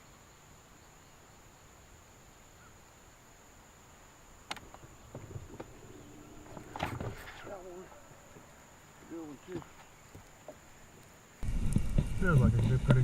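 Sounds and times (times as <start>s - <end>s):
faint outdoor noise: 0.0s - 13.0s.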